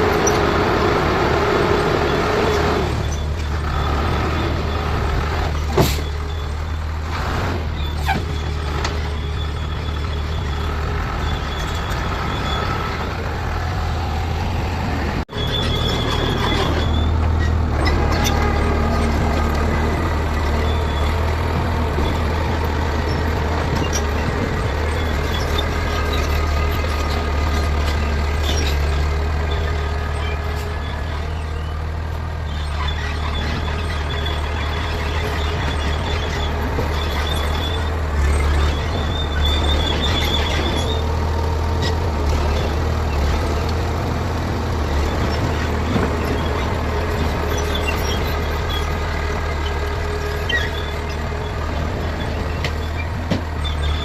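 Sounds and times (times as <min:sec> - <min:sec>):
bulldozer diesel engine rumbling: 0:00.0 - 0:54.0
thin high squeal: 0:15.3 - 0:17.5.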